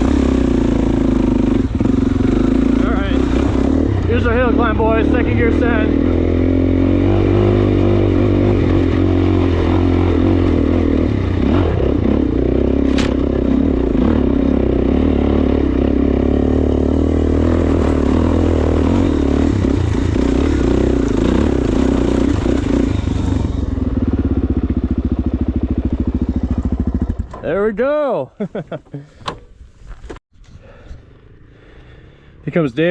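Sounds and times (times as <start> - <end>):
motorcycle engine pulling hard: 0.0 - 27.5
sharp knock: 12.8 - 13.3
motorcycle clattering over rough ground: 12.8 - 13.6.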